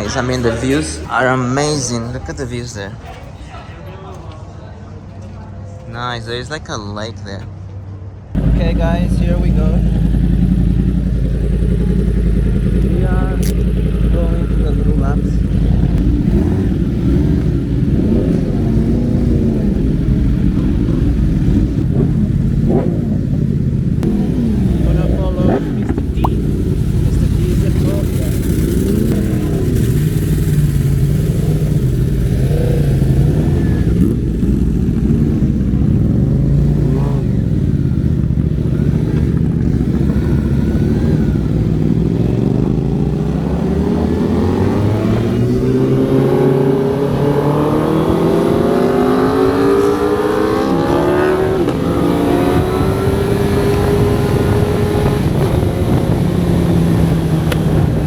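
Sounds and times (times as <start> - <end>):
motorcycle engine accelerating: 8.3 - 58.0
wind rush: 44.7 - 58.0.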